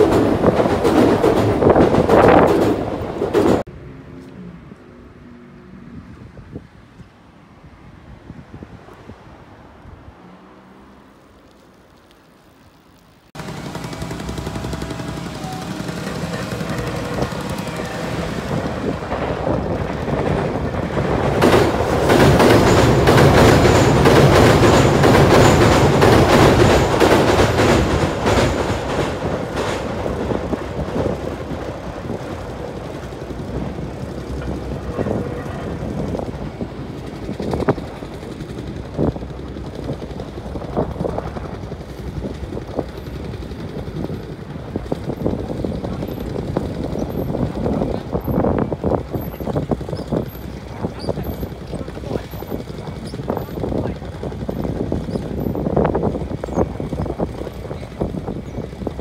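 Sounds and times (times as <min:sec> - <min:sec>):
train rumbling over a steel bridge: 0:00.0 - 0:06.7, 0:13.2 - 0:59.0.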